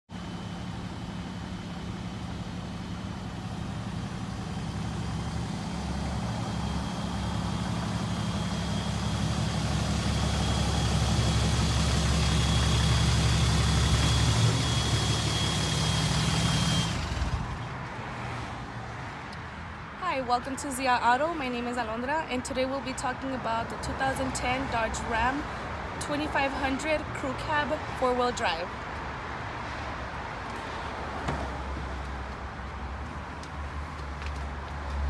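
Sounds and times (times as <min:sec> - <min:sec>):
diesel engine idling: 0:00.1 - 0:17.8.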